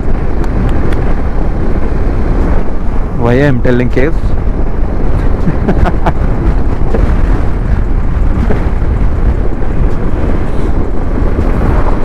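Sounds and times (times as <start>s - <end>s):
road noise: 0.0s - 12.0s
wind buffeting microphone: 0.0s - 12.0s.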